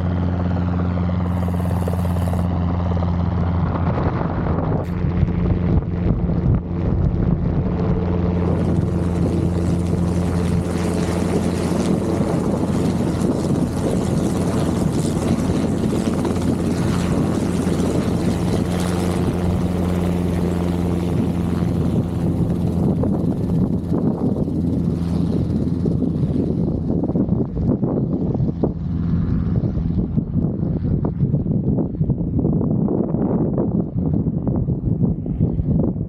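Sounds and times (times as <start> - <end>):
helicopter engine and rotors drone: 0.0 - 36.0.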